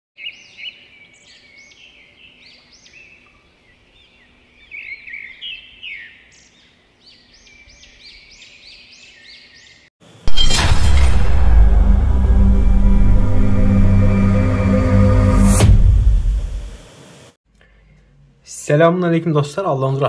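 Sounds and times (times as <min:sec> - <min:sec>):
birds chirping: 0:00.2 - 0:09.9
loud music: 0:10.5 - 0:16.7.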